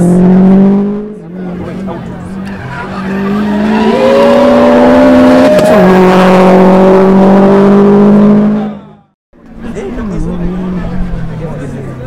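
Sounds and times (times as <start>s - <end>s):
car engine revving high: 0.0s - 9.1s.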